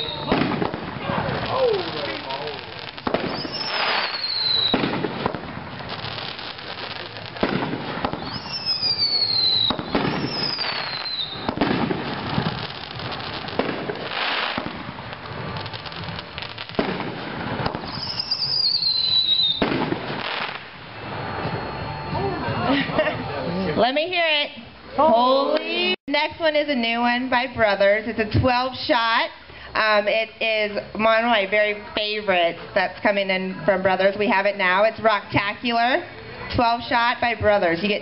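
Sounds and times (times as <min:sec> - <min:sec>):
fireworks tube firing: 0:00.0 - 0:21.7.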